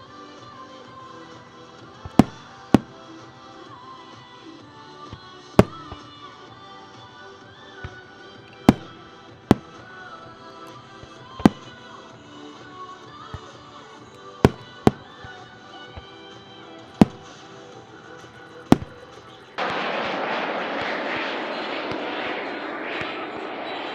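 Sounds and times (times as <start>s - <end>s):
fireworks banging: 2.1s - 2.9s, 5.6s - 6.0s, 8.7s - 8.9s, 14.5s - 15.1s, 17.0s - 17.4s, 18.7s - 23.9s.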